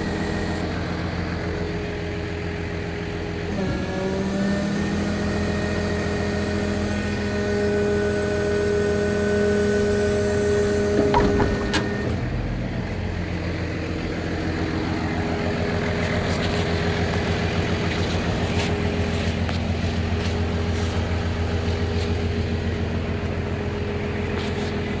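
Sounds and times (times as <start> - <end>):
diesel engine running: 0.0 - 25.0
clunk: 10.4 - 12.4.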